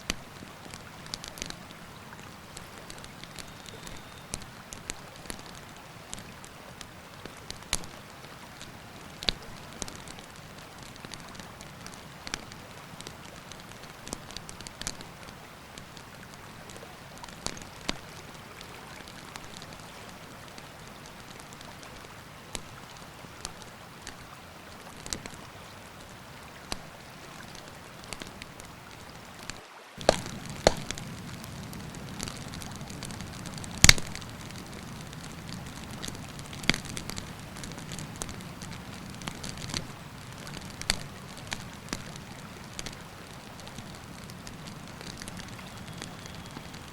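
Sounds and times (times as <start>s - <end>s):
river rushing: 0.0s - 45.8s
campfire crackling: 0.0s - 46.9s
sharp fire pops: 30.0s - 43.0s, 43.6s - 46.9s.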